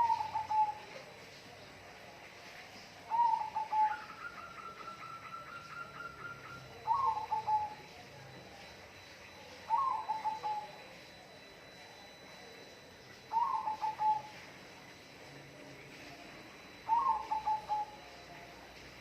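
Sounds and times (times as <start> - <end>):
bird calling: 0.0 - 1.0, 3.0 - 8.0, 9.3 - 11.3, 13.0 - 14.5, 15.8 - 18.7.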